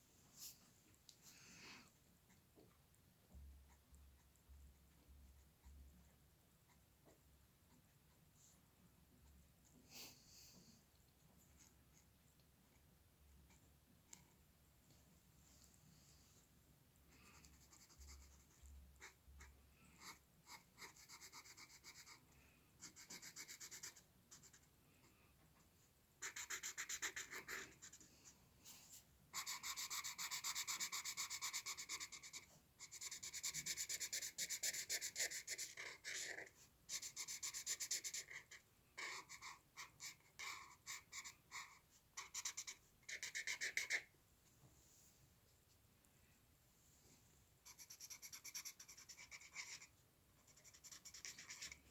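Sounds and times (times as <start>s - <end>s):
drawing tool scratching on paper: 26.2s - 28.0s, 29.4s - 44.1s, 47.7s - 49.9s, 50.5s - 51.9s.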